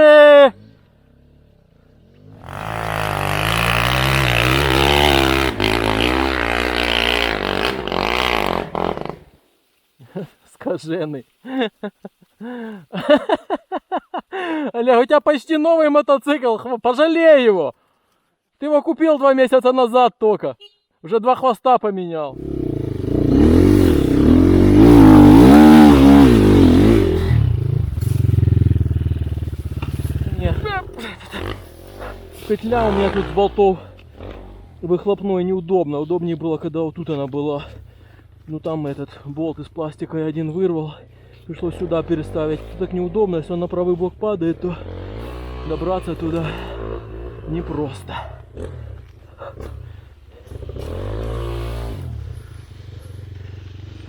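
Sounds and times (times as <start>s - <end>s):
motorcycle engine revving hard: 1.1s - 9.3s, 22.4s - 34.8s, 44.5s - 53.5s.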